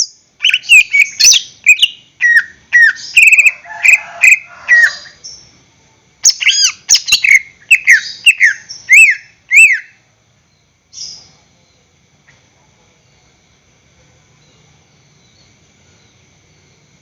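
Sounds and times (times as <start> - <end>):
bird singing whistled notes: 0.0 - 3.6, 6.2 - 11.8.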